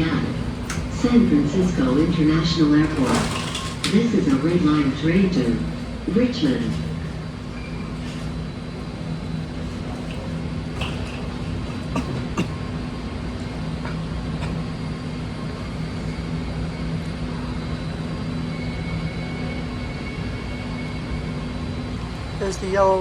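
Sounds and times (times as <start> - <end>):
train electrical hum: 0.0 - 23.0.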